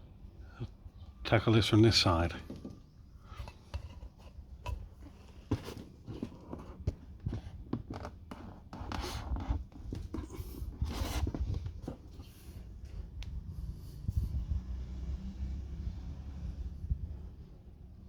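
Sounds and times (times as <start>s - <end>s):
rubbing scrapes on metal: 5.0s - 12.6s.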